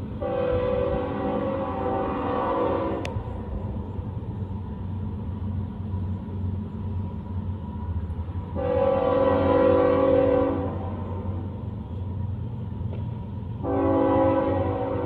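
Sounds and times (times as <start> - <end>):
train rumbling: 0.0 - 15.0
train horn: 0.2 - 3.1, 8.5 - 11.4, 13.6 - 15.0.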